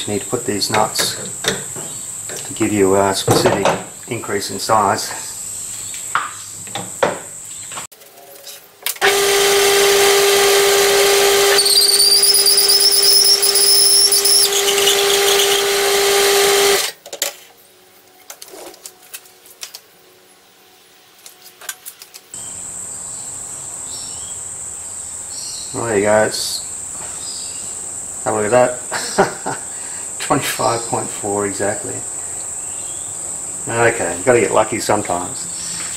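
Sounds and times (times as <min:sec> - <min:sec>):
crickets chirping: 0:00.0 - 0:07.8, 0:11.0 - 0:15.8, 0:22.3 - 0:35.9
lathe humming: 0:09.0 - 0:16.9
reamer squealing and chattering: 0:11.2 - 0:16.8.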